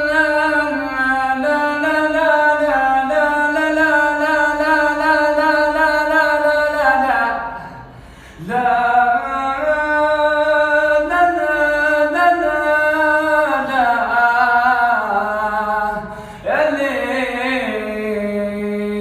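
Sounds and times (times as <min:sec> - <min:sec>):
man singing wordless melody: 0:00.0 - 0:19.0.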